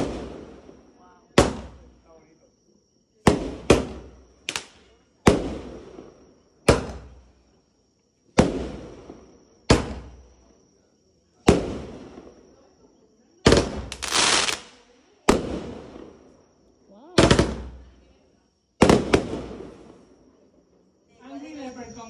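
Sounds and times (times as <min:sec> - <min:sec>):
fireworks bangs with echo: 0:00.0 - 0:02.1, 0:03.2 - 0:07.4, 0:08.3 - 0:10.4, 0:11.4 - 0:12.4, 0:13.4 - 0:16.4, 0:17.1 - 0:18.0, 0:18.8 - 0:20.2.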